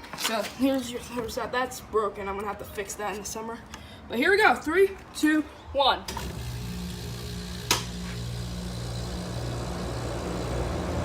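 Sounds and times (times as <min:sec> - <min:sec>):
air conditioner motor hum: 0:06.1 - 0:11.0.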